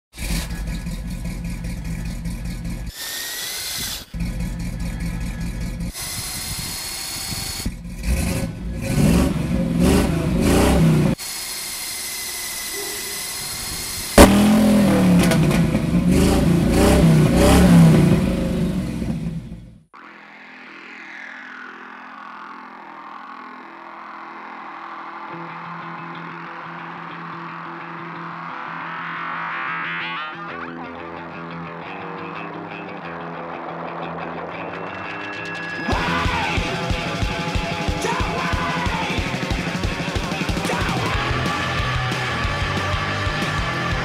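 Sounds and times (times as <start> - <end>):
car engine idling and revving: 0.1 - 3.0, 4.1 - 11.2, 12.1 - 19.9, 35.6 - 44.0.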